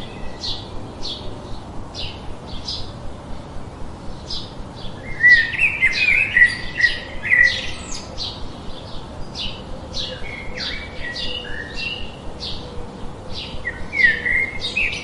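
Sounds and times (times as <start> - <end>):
small birds chirping: 0.0 - 15.0
low whistled bird notes: 4.2 - 15.0.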